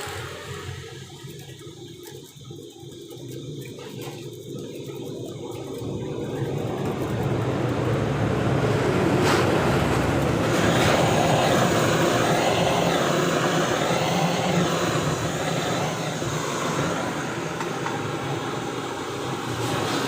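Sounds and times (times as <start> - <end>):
steady mechanical noise: 0.0 - 20.0.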